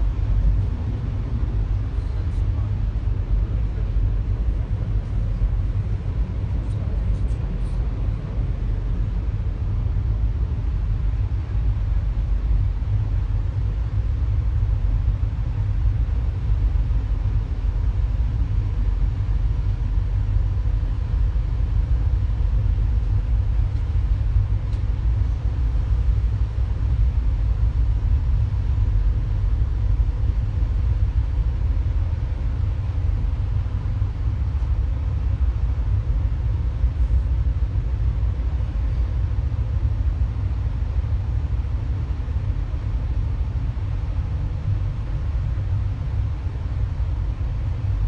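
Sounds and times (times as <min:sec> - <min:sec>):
train rumbling: 0:00.0 - 0:14.1
noisy rush: 0:00.0 - 0:48.0.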